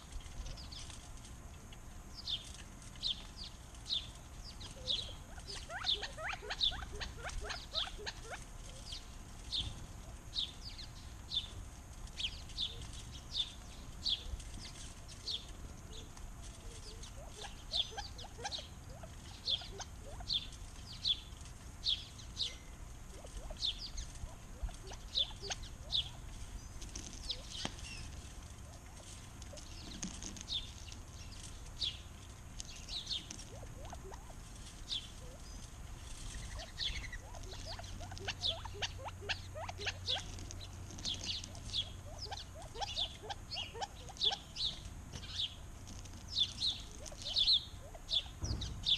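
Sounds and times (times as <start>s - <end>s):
small birds chirping: 0.0s - 48.9s
fainter lower bird calls: 1.7s - 45.6s, 46.3s - 48.9s.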